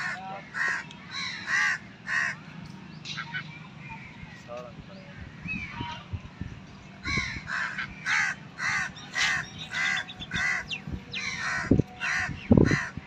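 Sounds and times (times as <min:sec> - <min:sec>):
bird calling: 0:00.0 - 0:02.4, 0:07.1 - 0:13.0.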